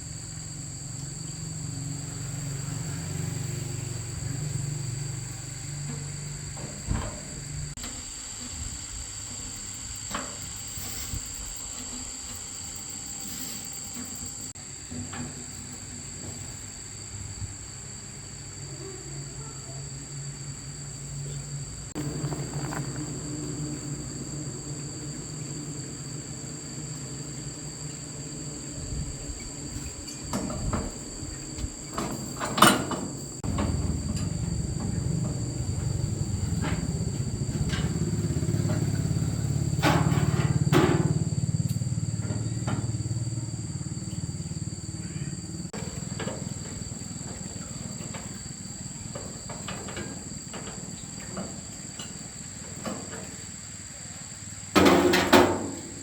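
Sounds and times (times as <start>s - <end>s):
insects trilling: 0.0s - 56.0s
low hum: 21.9s - 30.1s.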